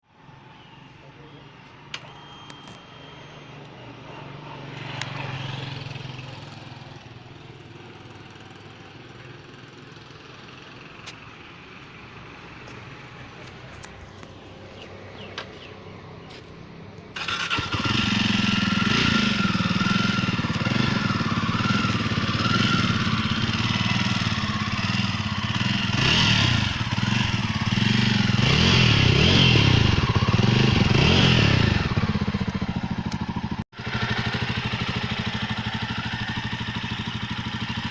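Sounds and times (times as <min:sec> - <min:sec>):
motorcycle engine revving: 0:02.0 - 0:08.8, 0:17.2 - 0:37.9.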